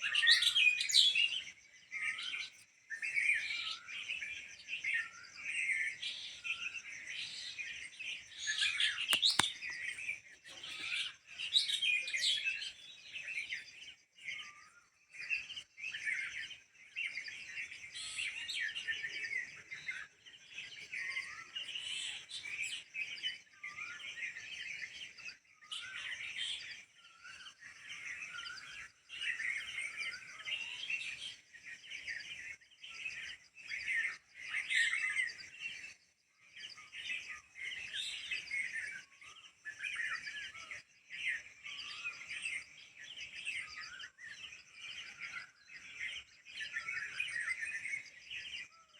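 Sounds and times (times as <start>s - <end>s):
small birds chirping: 0.0s - 48.9s
sharp tick: 9.1s - 9.6s.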